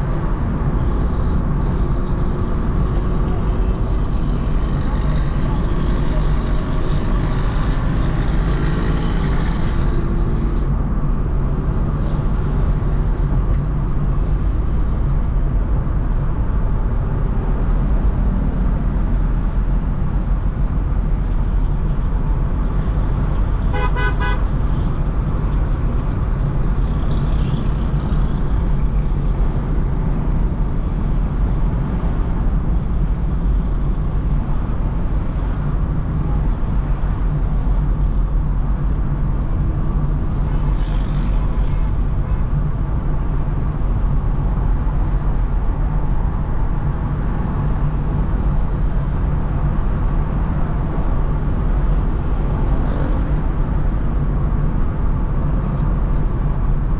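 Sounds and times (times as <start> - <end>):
car driving in traffic: 0.0 - 56.9
road and tyre noise: 0.0 - 56.9
vehicle horn honk: 23.7 - 24.5.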